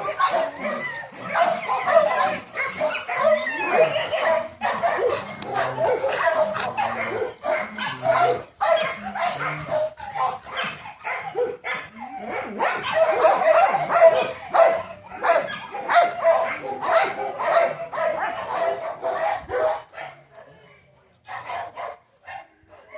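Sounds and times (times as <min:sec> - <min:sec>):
dog whining and barking: 0:00.0 - 0:16.3.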